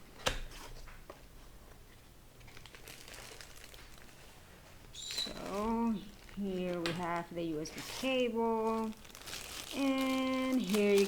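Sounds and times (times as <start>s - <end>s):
packaging rustling and crinkling: 2.4s - 11.0s
person speaking: 5.2s - 9.0s, 9.6s - 11.0s.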